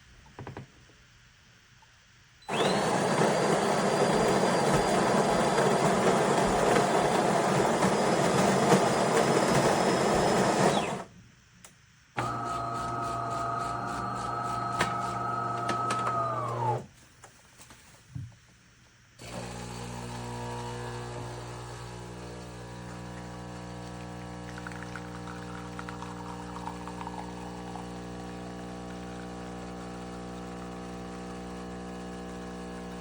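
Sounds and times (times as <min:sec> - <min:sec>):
coffee grinder grinding beans: 0:02.5 - 0:11.0, 0:12.2 - 0:16.8, 0:19.2 - 0:33.0
pump humming: 0:12.2 - 0:16.8, 0:19.2 - 0:33.0.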